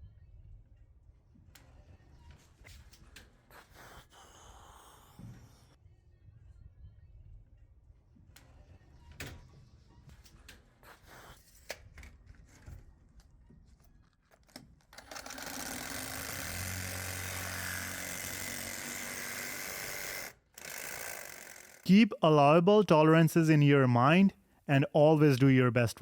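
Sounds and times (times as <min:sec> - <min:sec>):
power tool running: 0:15.0 - 0:21.9.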